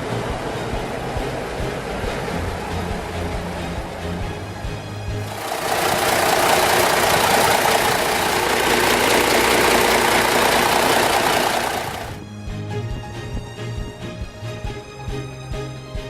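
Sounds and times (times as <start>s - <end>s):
background music: 0.0s - 16.0s
diesel truck engine running: 0.9s - 12.2s.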